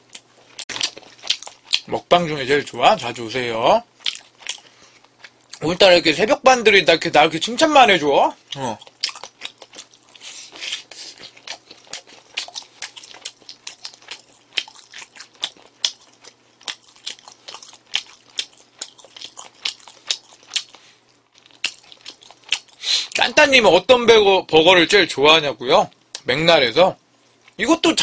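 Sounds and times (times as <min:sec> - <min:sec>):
chewing a burger: 0:00.0 - 0:02.0, 0:03.9 - 0:05.6, 0:08.4 - 0:23.2.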